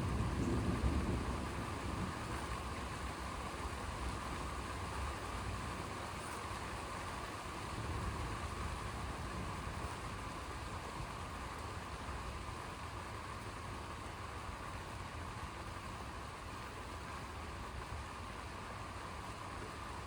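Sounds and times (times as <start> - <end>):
low thunder rumble: 0.0 - 3.1
steady rain hiss: 0.0 - 20.0.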